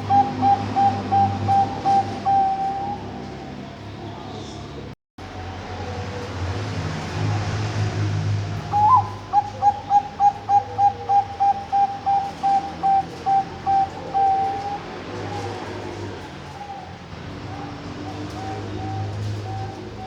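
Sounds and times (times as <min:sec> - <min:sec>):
dove cooing: 0:00.0 - 0:03.5, 0:08.6 - 0:20.0.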